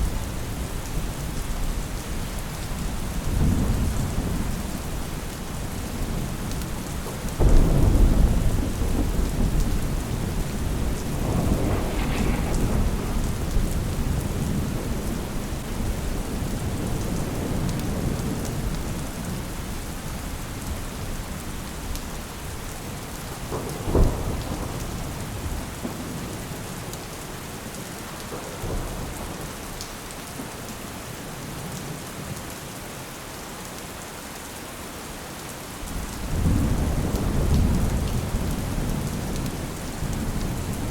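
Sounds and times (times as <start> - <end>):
steady rain: 0.0 - 40.9
rolling thunder: 7.0 - 19.4, 23.4 - 26.6, 35.9 - 40.9.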